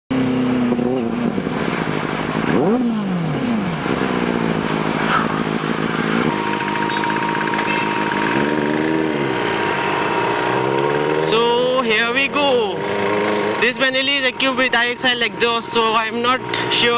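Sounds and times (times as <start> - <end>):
motorcycle engine revving: 0.1 - 16.9.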